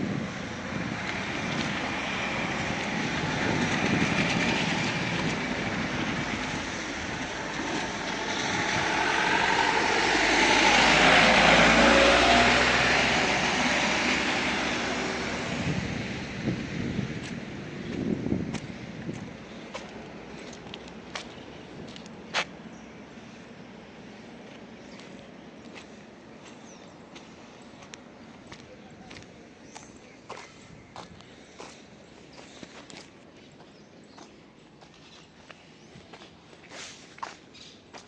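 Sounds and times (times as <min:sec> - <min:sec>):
vehicle passing by: 0:00.0 - 0:29.8.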